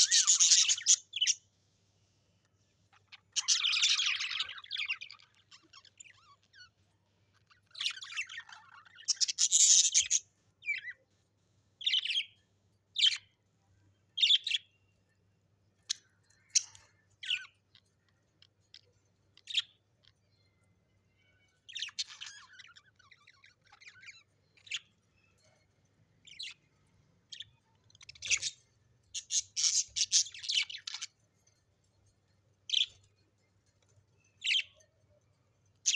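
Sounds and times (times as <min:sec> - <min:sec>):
parrot chirps and squawks: 0:00.0 - 0:01.4, 0:02.9 - 0:11.0, 0:15.8 - 0:20.5, 0:21.1 - 0:31.3, 0:32.7 - 0:33.2, 0:34.2 - 0:35.2.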